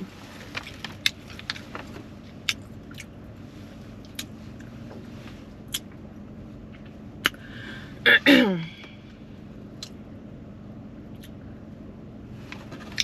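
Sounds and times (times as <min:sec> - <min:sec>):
low hum inside car: 0:00.0 - 0:13.0
person chewing: 0:02.4 - 0:03.2.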